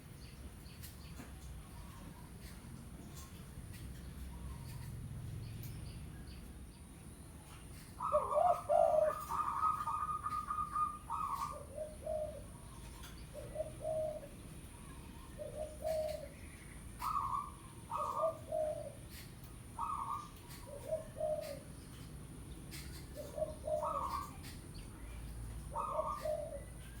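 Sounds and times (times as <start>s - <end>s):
dove cooing: 7.9s - 21.8s, 22.7s - 24.6s, 25.6s - 27.0s.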